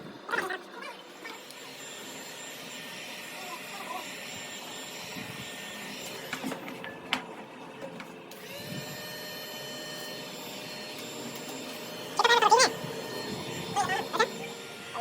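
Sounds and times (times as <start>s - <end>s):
power tool motor whirring: 1.2s - 7.0s, 8.3s - 15.0s.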